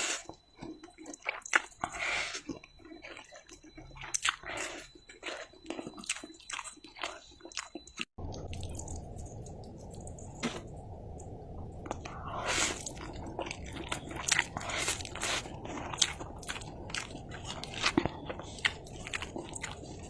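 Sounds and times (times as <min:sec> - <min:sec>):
chewing noodles: 0:00.0 - 0:20.0.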